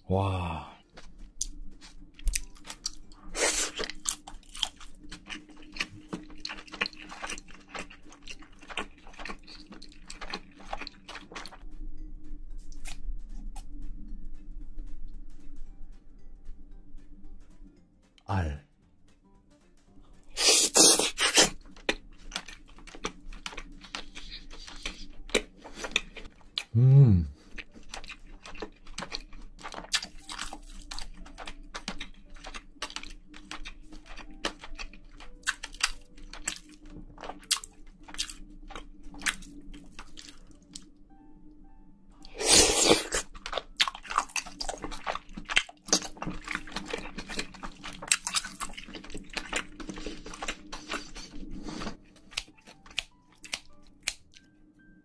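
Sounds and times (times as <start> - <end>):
crunchy wet chewing: 1.0 - 11.6, 20.3 - 26.7, 27.4 - 40.9, 42.2 - 54.4.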